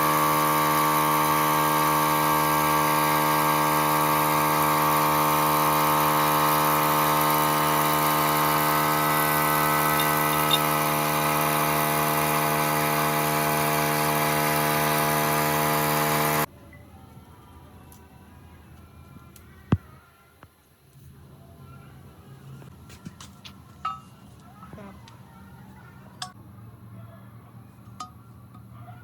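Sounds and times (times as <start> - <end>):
power tool motor running: 0.0 - 16.5.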